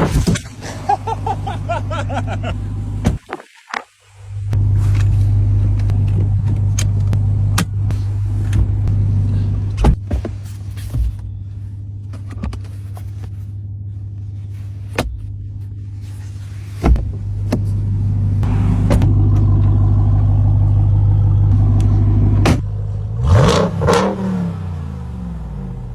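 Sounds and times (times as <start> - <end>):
engine idling: 4.4 - 25.9
engine revving: 18.0 - 25.9.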